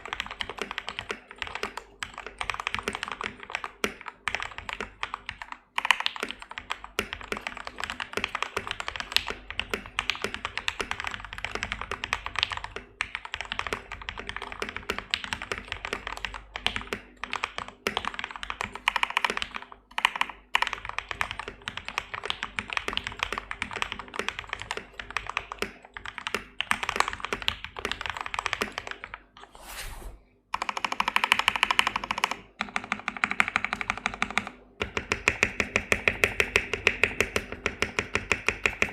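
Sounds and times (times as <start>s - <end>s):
mechanical keyboard typing: 0.0s - 29.2s, 30.5s - 38.9s.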